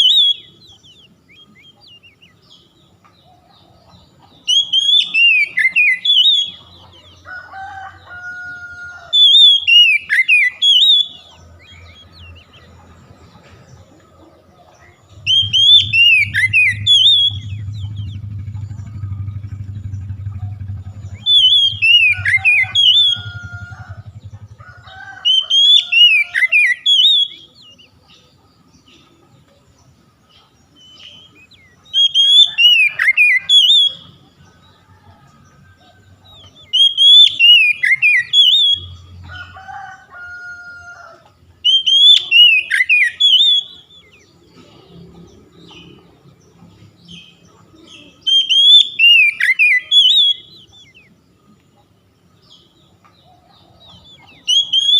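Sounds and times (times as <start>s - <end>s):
bird singing whistled phrases: 0.0s - 2.4s, 4.4s - 6.6s, 9.1s - 12.1s, 15.2s - 18.2s, 21.0s - 23.5s, 25.3s - 27.9s, 30.8s - 34.2s, 36.6s - 39.0s, 41.6s - 44.2s, 48.1s - 51.1s, 54.4s - 54.9s
low hum: 15.1s - 24.9s.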